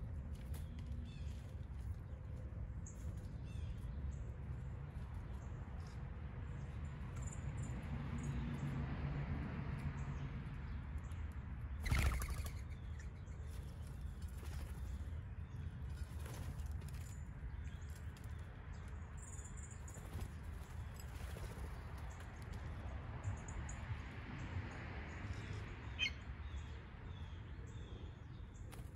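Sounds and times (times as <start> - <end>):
birds chirping: 11.0 - 23.8, 25.1 - 28.9
wings flapping: 11.8 - 12.8, 13.5 - 15.1, 19.9 - 22.3.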